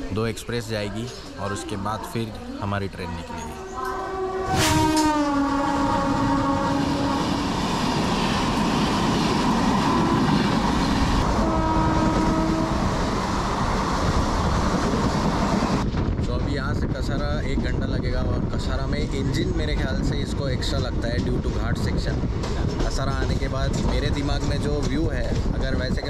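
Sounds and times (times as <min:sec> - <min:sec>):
train coaches rumbling and clattering: 0:00.0 - 0:26.0
train horn: 0:03.5 - 0:07.5, 0:09.8 - 0:10.6, 0:11.2 - 0:13.0.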